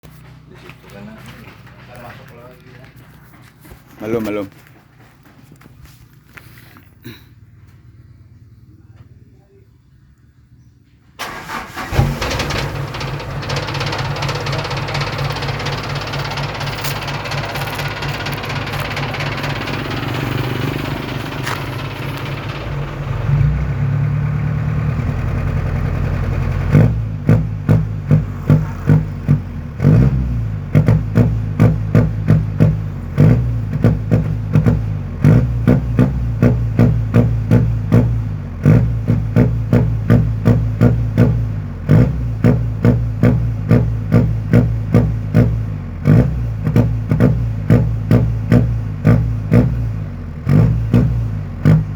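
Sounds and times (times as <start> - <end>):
motorcycle engine revving: 11.2 - 51.9.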